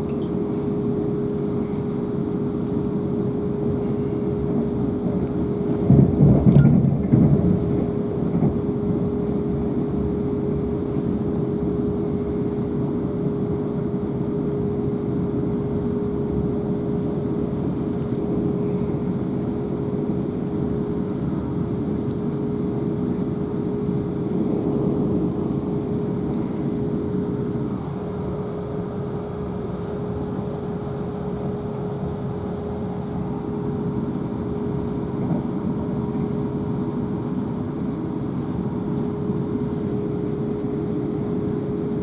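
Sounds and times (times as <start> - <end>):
train wheels rumbling on track: 0.0 - 14.4
steady train hum: 0.0 - 42.0.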